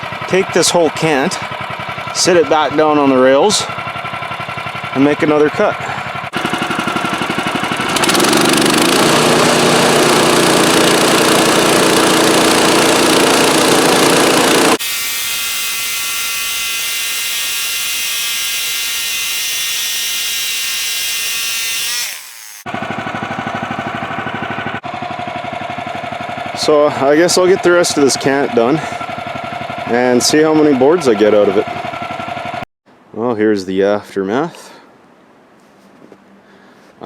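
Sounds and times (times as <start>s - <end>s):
sawmill engine running: 0.0s - 32.6s
bandsaw blade sawing wood: 5.8s - 24.0s.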